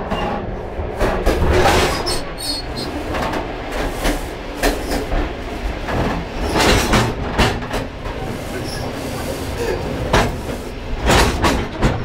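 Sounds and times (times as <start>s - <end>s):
train rumbling: 0.0s - 12.0s
metallic clanks and rattles: 5.9s - 7.9s, 10.1s - 12.0s.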